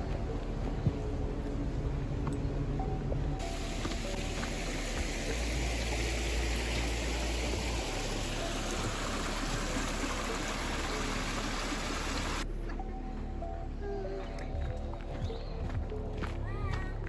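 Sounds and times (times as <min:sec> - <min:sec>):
faint background music: 0:00.0 - 0:17.0
stream water rushing: 0:03.4 - 0:12.4.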